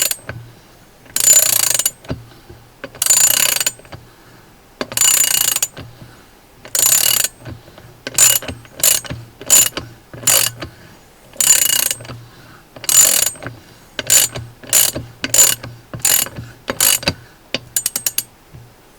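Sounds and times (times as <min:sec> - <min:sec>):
ratchet handle clicking: 0:00.0 - 0:00.4, 0:01.1 - 0:02.2, 0:02.8 - 0:04.0, 0:04.8 - 0:06.0, 0:06.6 - 0:10.8, 0:11.4 - 0:12.2, 0:12.8 - 0:18.4.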